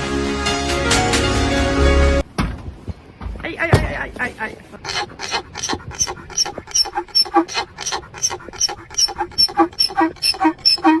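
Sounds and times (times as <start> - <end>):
animal calling in rapid notes: 4.8 - 11.0.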